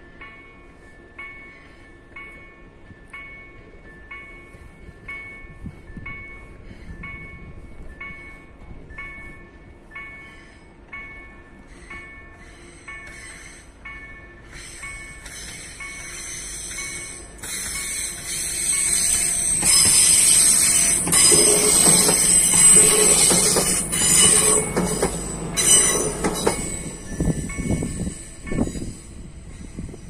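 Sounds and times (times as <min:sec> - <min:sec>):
crossing warning bells ringing: 0:00.0 - 0:30.0
train wheels squealing: 0:09.1 - 0:30.0
train wheel knocks: 0:18.9 - 0:26.8.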